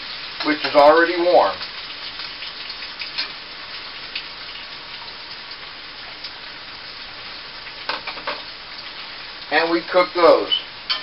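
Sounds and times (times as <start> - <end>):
oil popping and crackling: 0.0 - 11.0
vegetables sizzling in oil: 0.0 - 11.0.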